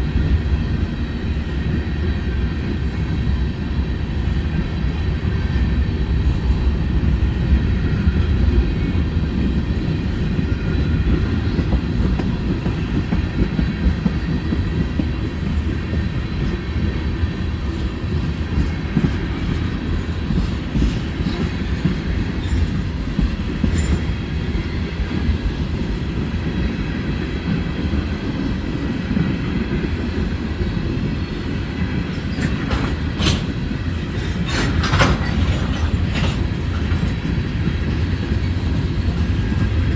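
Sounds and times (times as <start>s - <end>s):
freight train rumbling past: 0.0s - 39.9s
wheels clattering over rails: 32.3s - 39.9s.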